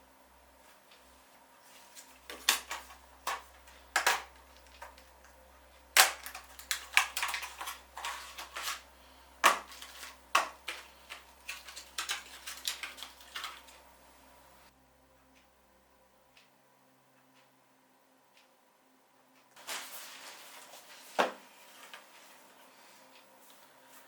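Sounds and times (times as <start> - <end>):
computer parts clicking and knocking: 2.3 - 5.3, 6.0 - 8.8, 9.4 - 13.8.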